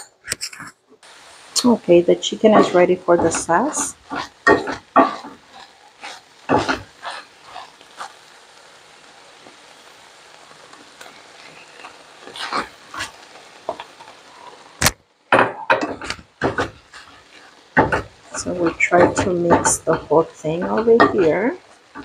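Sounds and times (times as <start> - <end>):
chicken sizzling in a skillet: 1.0 - 22.0
wooden spoon scraping: 1.7 - 8.2, 11.4 - 14.6, 15.9 - 22.0.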